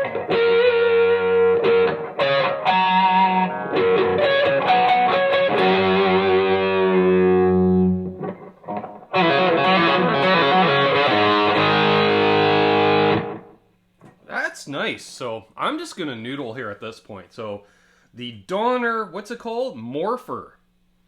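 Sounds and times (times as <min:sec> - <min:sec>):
distorted electric guitar: 0:00.0 - 0:13.6.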